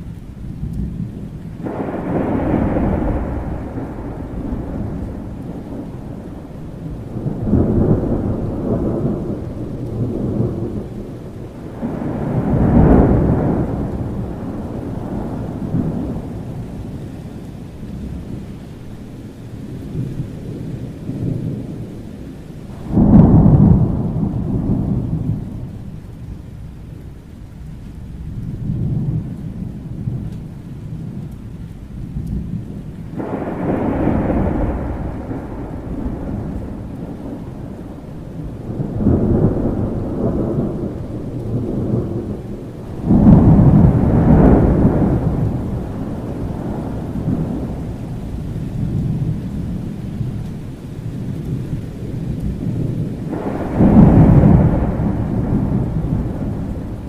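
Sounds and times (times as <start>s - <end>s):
low thunder rumble: 0.0s - 57.0s
rain: 0.0s - 57.0s
rolling thunder peals: 0.8s - 18.5s, 22.6s - 57.0s.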